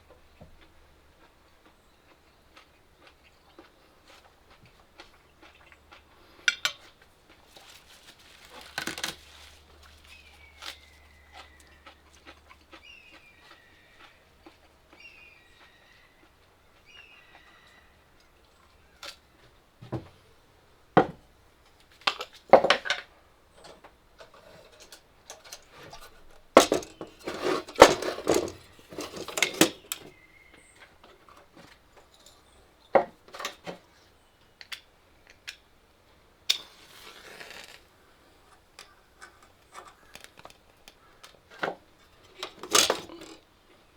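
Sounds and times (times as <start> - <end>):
faint bird chirps: 12.8 - 14.3, 15.0 - 19.5
metal utensils clinking on dishes: 24.2 - 30.2, 38.5 - 43.4.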